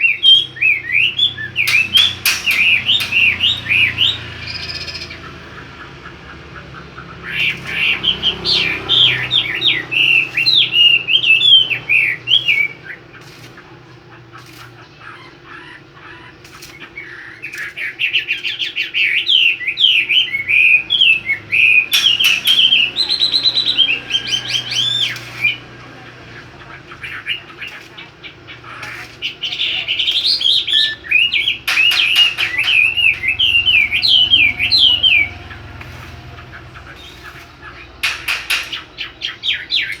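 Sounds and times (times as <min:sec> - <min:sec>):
songbird chirping and twittering: 0:00.0 - 0:40.0.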